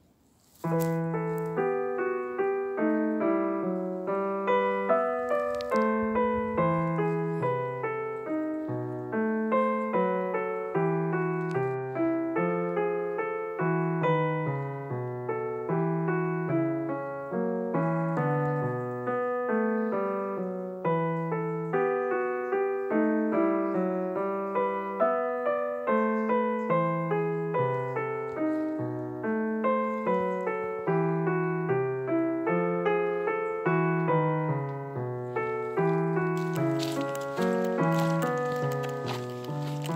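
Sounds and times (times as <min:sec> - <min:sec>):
solo piano music: 0:00.0 - 0:39.9.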